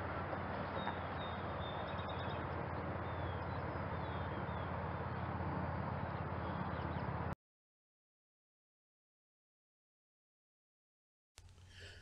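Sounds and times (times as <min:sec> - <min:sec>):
outdoor background noise: 0:00.0 - 0:07.4
small birds chirping: 0:00.7 - 0:05.3, 0:06.0 - 0:07.3.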